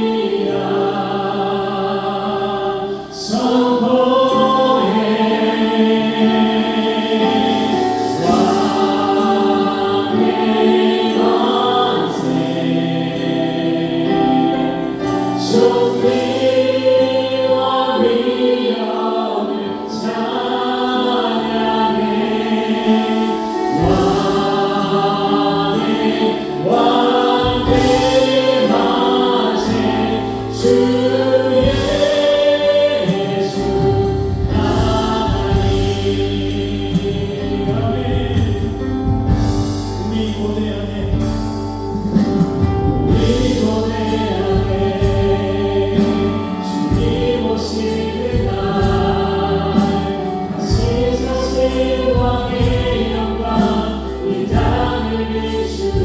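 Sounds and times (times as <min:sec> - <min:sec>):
people singing: 0:00.0 - 0:56.0
bass guitar: 0:23.8 - 0:56.0
drum beat: 0:26.0 - 0:36.5, 0:42.3 - 0:46.2, 0:46.9 - 0:55.1.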